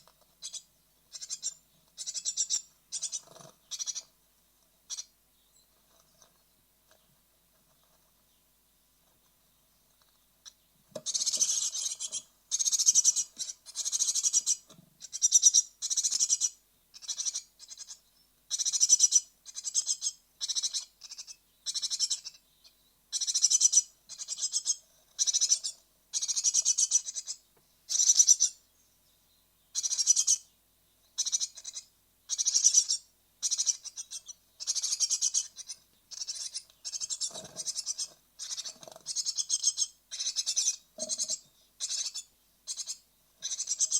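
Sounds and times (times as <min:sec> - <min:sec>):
nestlings hissing begging calls: 0:11.1 - 0:22.3, 0:23.2 - 0:28.6, 0:29.8 - 0:30.4, 0:31.2 - 0:43.9.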